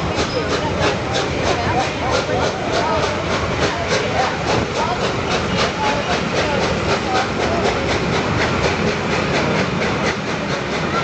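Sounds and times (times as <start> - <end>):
rapid rhythmic beat: 0.0 - 11.0
train wheel and rail noise: 0.0 - 11.0.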